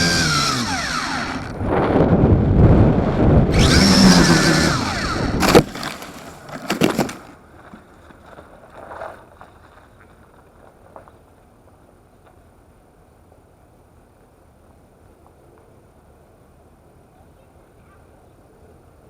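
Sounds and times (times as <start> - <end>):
quadcopter motors whining: 0.0 - 1.6, 3.5 - 5.6
drone crashing: 0.0 - 5.7
wind noise: 0.0 - 5.7.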